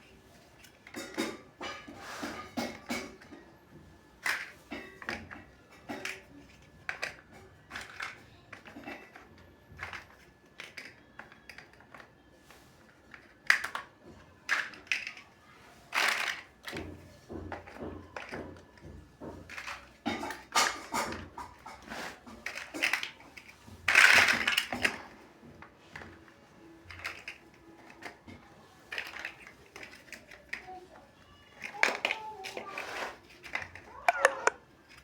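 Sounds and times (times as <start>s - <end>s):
plastic bricks clicking and snapping: 4.2s - 12.1s, 13.1s - 15.3s, 15.9s - 25.1s, 26.8s - 30.8s, 31.5s - 35.0s.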